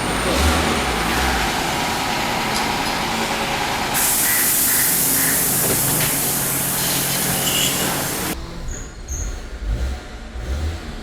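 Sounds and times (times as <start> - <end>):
loud steady rushing hiss: 4.0 - 8.4.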